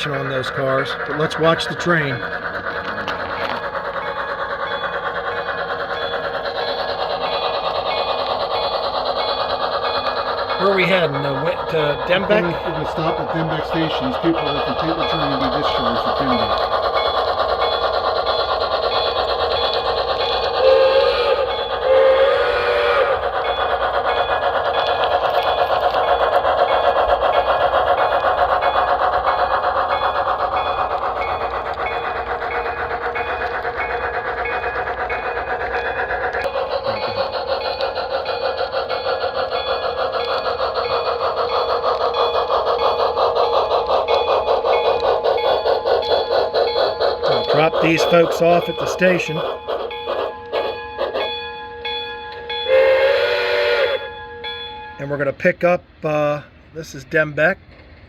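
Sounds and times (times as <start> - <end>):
model locomotive motor whirring: 0.0 - 58.0
wheels rolling on rails: 0.0 - 58.0
steam train whistle blast: 20.6 - 23.2, 52.7 - 54.5.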